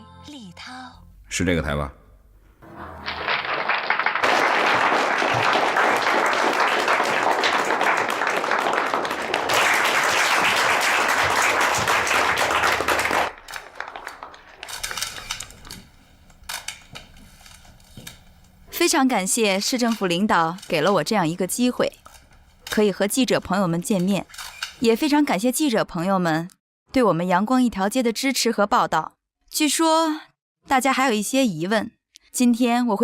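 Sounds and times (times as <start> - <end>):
audience applauding: 2.6 - 14.9.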